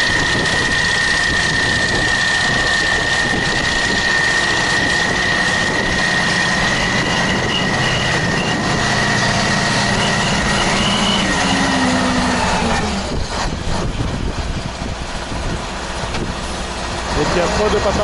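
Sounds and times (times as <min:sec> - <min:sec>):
high-pitched whine: 0:00.0 - 0:14.2
diesel tractor engine running: 0:00.0 - 0:18.0.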